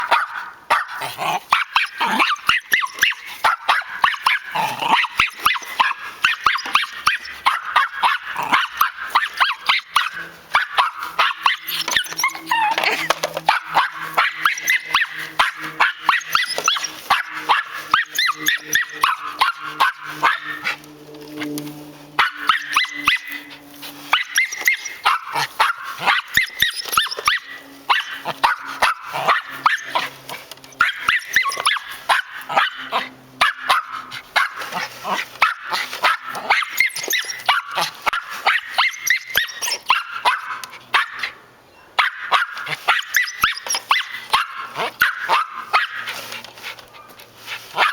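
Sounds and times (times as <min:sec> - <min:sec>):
dog barking rapidly: 0:00.0 - 0:21.5, 0:22.2 - 0:41.4, 0:42.0 - 0:46.2, 0:47.6 - 0:47.9
lawn mower running: 0:01.5 - 0:38.2.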